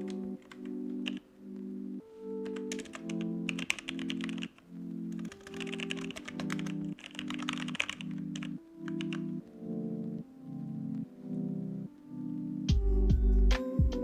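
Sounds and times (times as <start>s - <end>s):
computer keyboard typing: 0.0s - 10.3s
background music of sustained chords: 0.0s - 14.0s.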